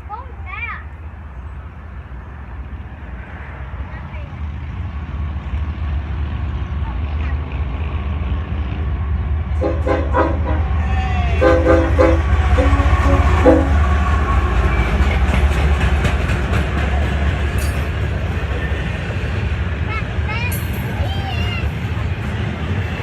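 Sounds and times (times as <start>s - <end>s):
train rumbling past: 0.0s - 23.0s
locomotive air horn blasts: 9.6s - 15.2s
wheels clacking over rails: 10.6s - 23.0s.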